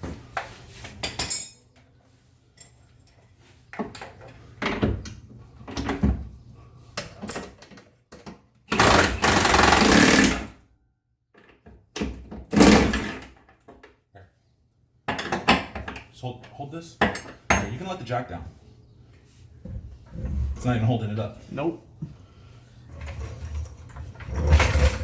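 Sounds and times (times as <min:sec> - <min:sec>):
tools clanking: 0:01.1 - 0:01.6
impact wrench bursts: 0:08.7 - 0:10.5.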